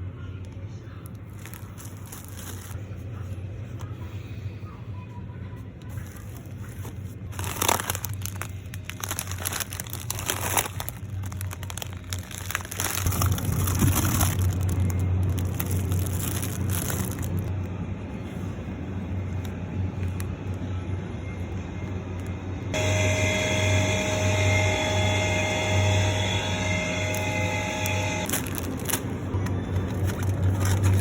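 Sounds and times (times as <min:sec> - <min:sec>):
steady low hum: 0:00.0 - 0:31.0
packaging crinkling and rustling: 0:01.0 - 0:02.8, 0:05.9 - 0:17.7, 0:28.2 - 0:31.0.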